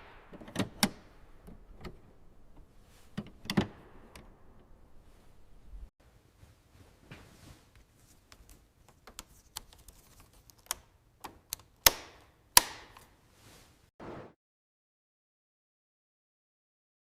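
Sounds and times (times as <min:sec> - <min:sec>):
short scuff: 0:14.0 - 0:14.3.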